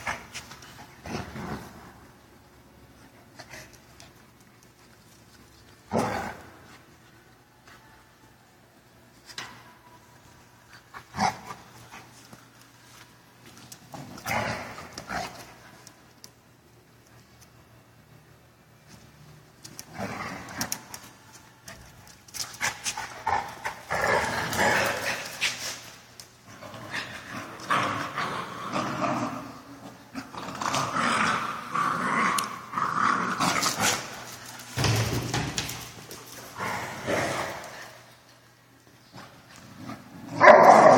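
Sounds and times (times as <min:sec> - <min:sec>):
dogs growling: 0:26.5 - 0:34.2.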